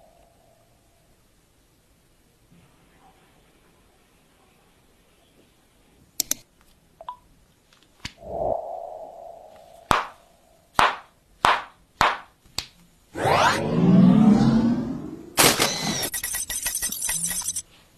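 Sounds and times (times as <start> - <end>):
loud rising whoosh: 8.2 - 10.4, 13.2 - 15.4.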